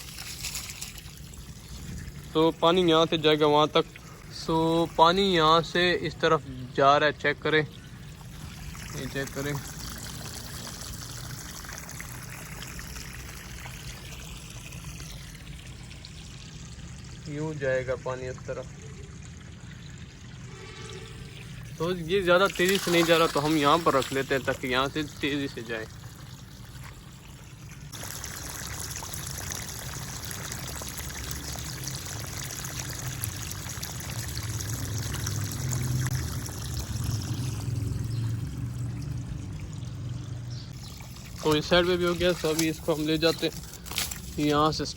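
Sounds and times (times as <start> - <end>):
water flowing from a hose: 0.0 - 44.9.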